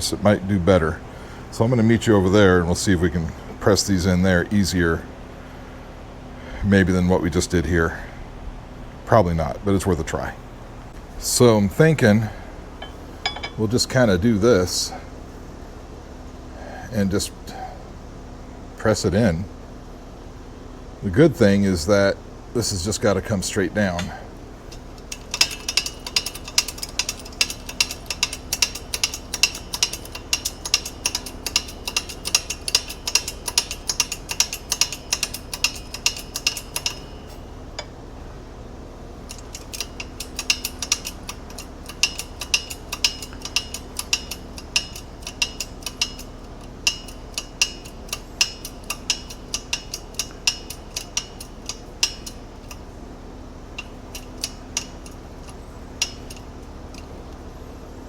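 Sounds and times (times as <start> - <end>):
shop press metallic clicks: 12.8 - 13.7, 23.9 - 38.0, 39.3 - 53.0, 53.7 - 57.4.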